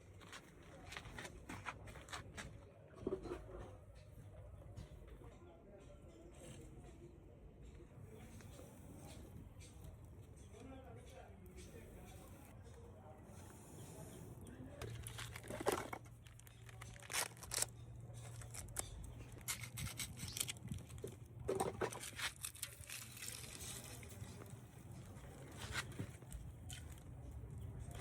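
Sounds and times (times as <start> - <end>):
rustling and scraping of handled things: 0.0 - 28.0.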